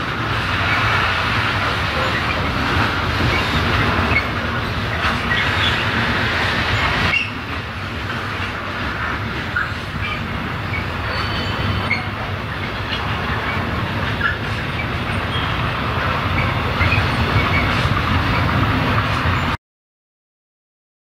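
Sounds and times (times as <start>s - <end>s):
train wheels rumbling on rails: 0.0s - 19.6s
wheel squeals and clicks: 1.6s - 7.6s, 9.4s - 19.6s.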